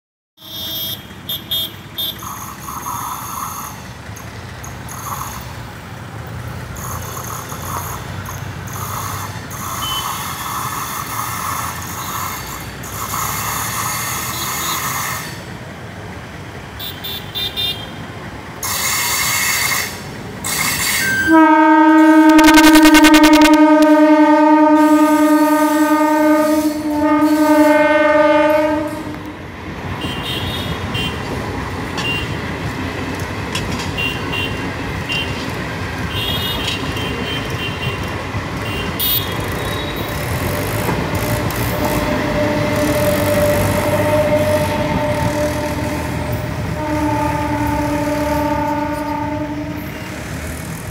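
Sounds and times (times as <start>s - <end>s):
train coaches rolling past: 0.4s - 50.9s
wheels clicking on track: 1.1s - 24.0s, 28.4s - 50.9s
train horn blasts: 9.7s - 10.6s, 13.1s - 15.4s, 18.9s - 29.4s, 41.1s - 50.4s.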